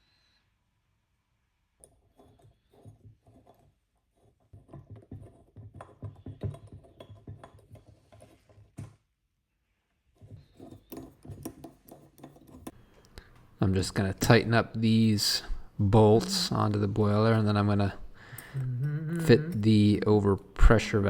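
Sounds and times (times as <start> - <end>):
metal parts clicking and knocking: 1.8 - 8.7, 10.2 - 12.8.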